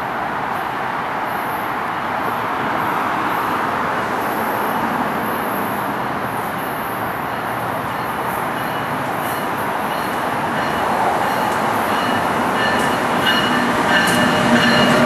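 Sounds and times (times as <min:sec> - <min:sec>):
traffic roar: 0:00.0 - 0:15.0
distant train rumble: 0:02.6 - 0:15.0.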